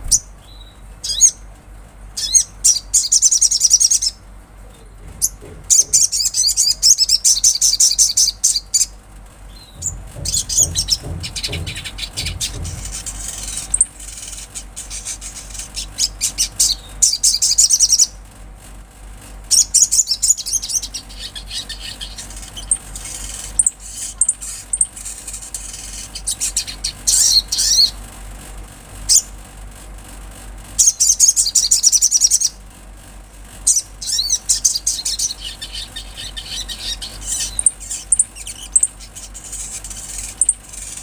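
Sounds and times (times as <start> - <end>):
bird twittering trills: 0.0 - 1.4, 2.2 - 18.2, 19.5 - 28.0, 33.7 - 41.0.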